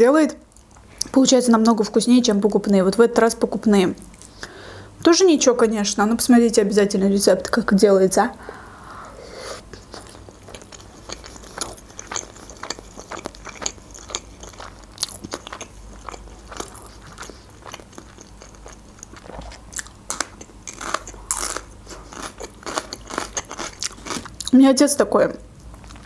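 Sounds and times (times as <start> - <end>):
person chewing wetly: 9.7 - 24.5, 25.6 - 26.0
crunching raw pepper: 9.8 - 24.5.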